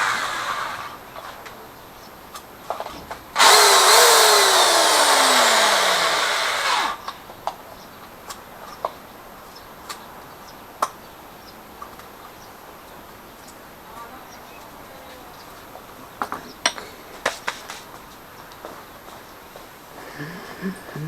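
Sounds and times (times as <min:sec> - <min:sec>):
electric power drill running: 0:00.0 - 0:01.0, 0:03.4 - 0:07.0.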